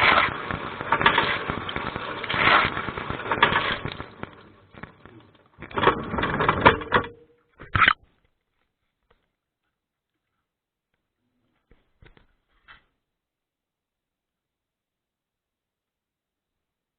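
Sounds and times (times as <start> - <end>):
dishwasher water jets splashing: 0.0 - 7.1.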